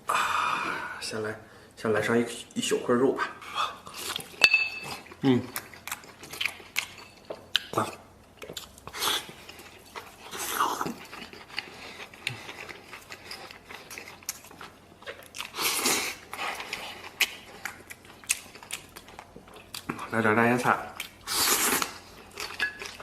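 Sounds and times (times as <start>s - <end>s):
person chewing meat: 3.8s - 20.1s, 20.9s - 23.0s.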